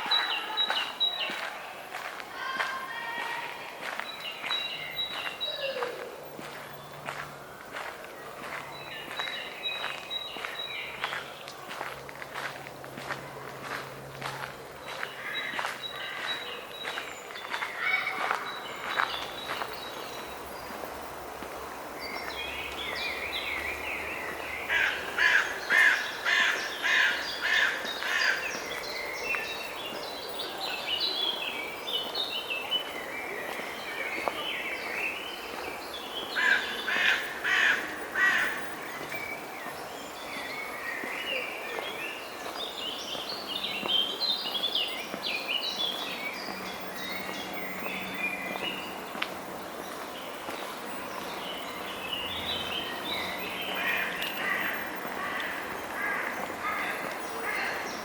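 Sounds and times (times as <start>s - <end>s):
crows cawing: 24.7s - 28.4s, 36.4s - 38.6s, 53.8s - 57.8s.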